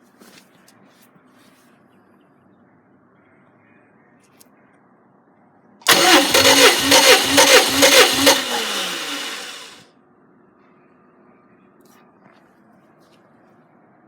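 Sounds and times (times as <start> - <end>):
engine starter cranking: 5.8 - 9.8
engine running and winding down: 5.9 - 9.8.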